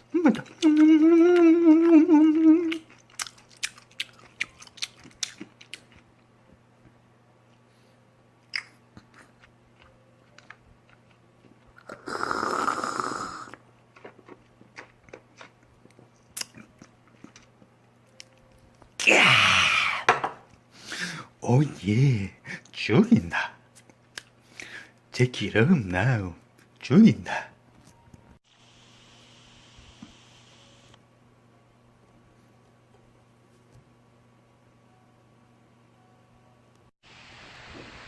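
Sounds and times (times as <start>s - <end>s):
person humming mmm: 0.0s - 3.3s, 11.8s - 13.6s, 19.0s - 20.1s
chewing with wet mouth clicks: 2.6s - 6.1s, 8.4s - 12.0s, 13.5s - 18.6s.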